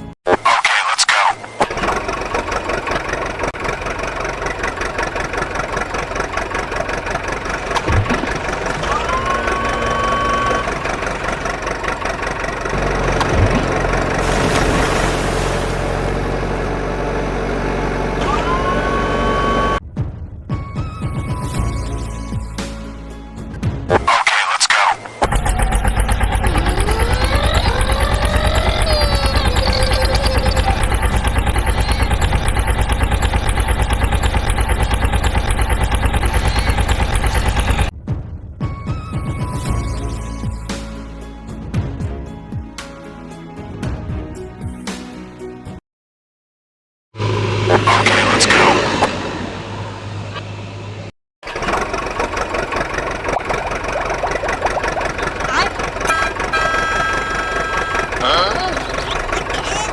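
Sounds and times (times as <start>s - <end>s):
vehicle engine running: 1.4s - 19.9s, 25.2s - 37.9s, 47.2s - 59.9s
short rising tone: 47.2s - 51.1s.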